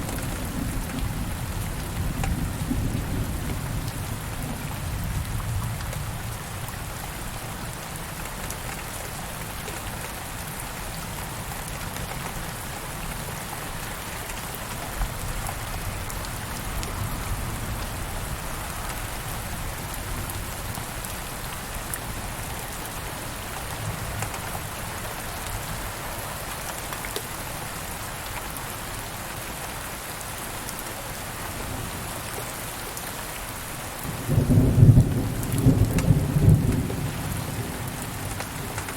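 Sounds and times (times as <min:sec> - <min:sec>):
rain falling: 0:00.0 - 0:38.9
raindrop ticks: 0:01.8 - 0:02.4, 0:24.1 - 0:24.6, 0:26.5 - 0:27.3, 0:34.6 - 0:37.0, 0:37.8 - 0:38.9.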